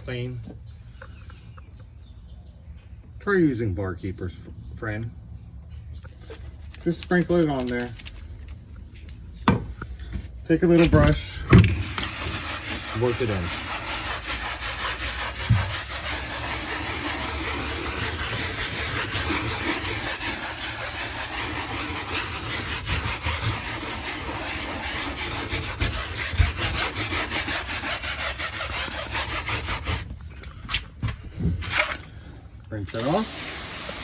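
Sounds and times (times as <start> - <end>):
hand brush scrubbing floor: 10.6 - 30.1, 33.0 - 34.0.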